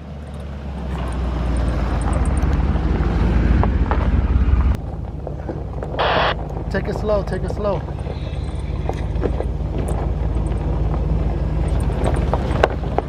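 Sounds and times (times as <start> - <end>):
truck engine and tyre rumble: 0.0 - 13.0.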